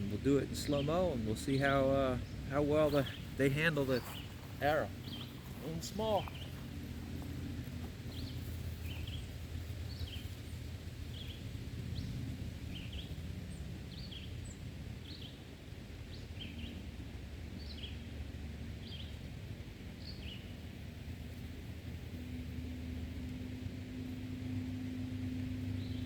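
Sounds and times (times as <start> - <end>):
low background rumble: 0.0 - 26.0
small bird chirping: 0.6 - 7.3.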